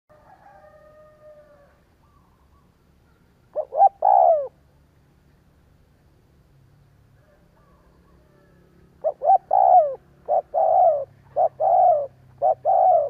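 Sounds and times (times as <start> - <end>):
dove cooing: 3.5 - 4.6, 7.3 - 13.0.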